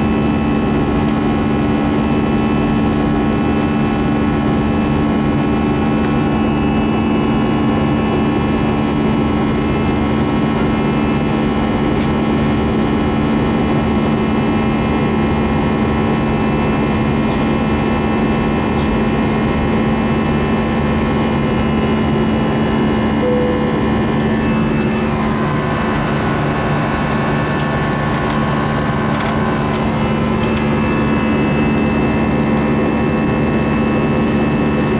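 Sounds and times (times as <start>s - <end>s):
jet engine cabin rush: 16.5s - 34.9s.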